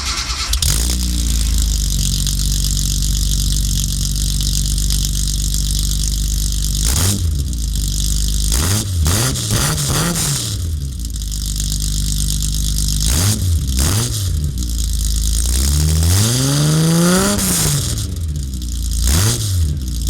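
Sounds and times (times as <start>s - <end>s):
engine revving: 0.0s - 4.8s, 6.7s - 7.4s, 8.4s - 10.9s, 13.0s - 14.6s, 15.5s - 18.2s, 19.0s - 19.8s
car engine idling: 0.0s - 9.0s, 10.6s - 15.6s.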